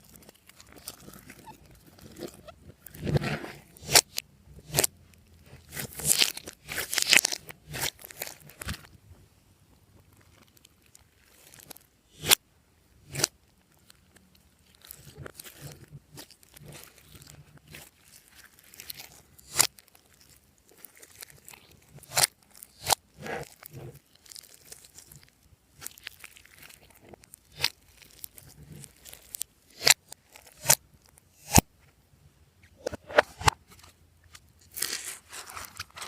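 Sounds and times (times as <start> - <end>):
hands squishing sticky slime: 3.8 - 8.9, 14.1 - 30.8.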